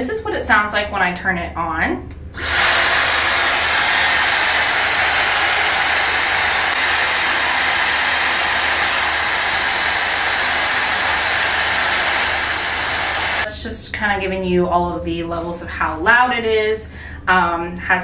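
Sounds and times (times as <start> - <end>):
hair dryer blowing air: 2.4 - 13.5.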